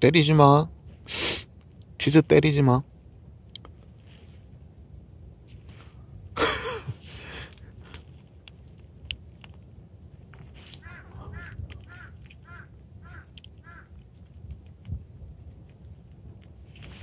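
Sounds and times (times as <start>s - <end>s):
bird calling: 10.7s - 14.0s.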